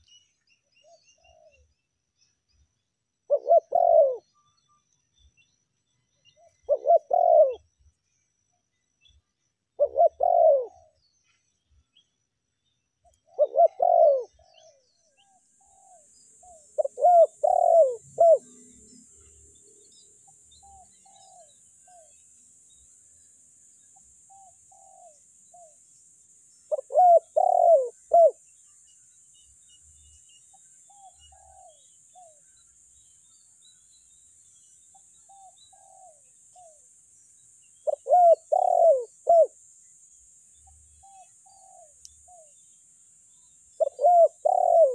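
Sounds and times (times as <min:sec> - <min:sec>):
dove cooing: 0:00.8 - 0:01.6, 0:03.3 - 0:04.2, 0:06.4 - 0:07.6, 0:09.8 - 0:11.0, 0:13.3 - 0:14.8, 0:15.6 - 0:18.7, 0:20.6 - 0:22.1, 0:24.3 - 0:25.8, 0:26.7 - 0:28.4, 0:30.9 - 0:32.4, 0:35.3 - 0:36.8, 0:37.8 - 0:39.6, 0:41.0 - 0:42.5, 0:43.8 - 0:44.9.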